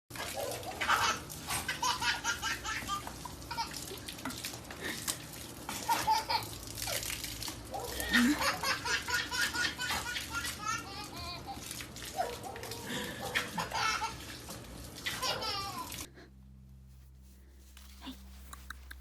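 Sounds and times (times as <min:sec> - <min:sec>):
baby laughing: 0:00.8 - 0:03.8, 0:05.7 - 0:07.1, 0:08.0 - 0:12.3, 0:13.2 - 0:14.4, 0:15.0 - 0:16.1.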